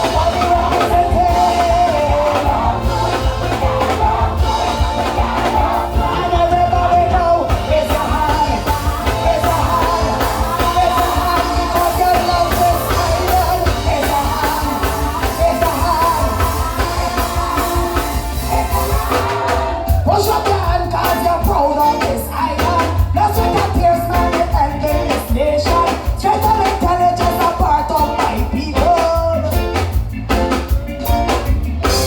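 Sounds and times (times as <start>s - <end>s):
person singing long notes: 0.0s - 20.4s
band with heavy bass beat: 0.0s - 32.0s.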